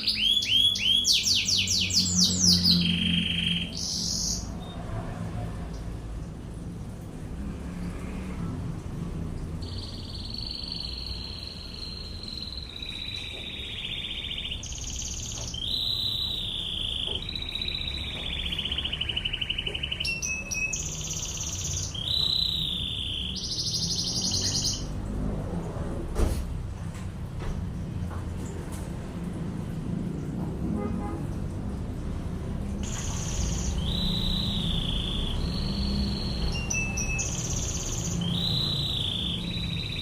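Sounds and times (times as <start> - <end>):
canary singing trills: 0.0 - 4.8, 9.6 - 25.0, 32.8 - 40.0.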